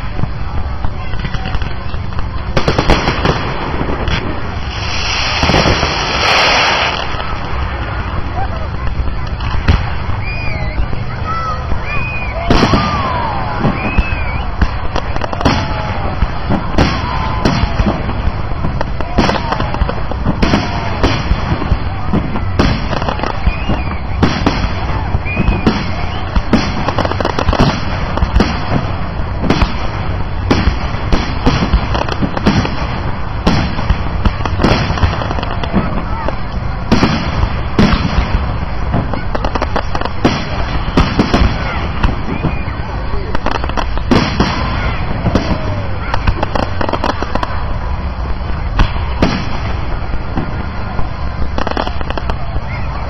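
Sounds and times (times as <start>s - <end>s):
fireworks crackle: 0.0s - 53.0s
firework shell bursts: 1.1s - 8.0s.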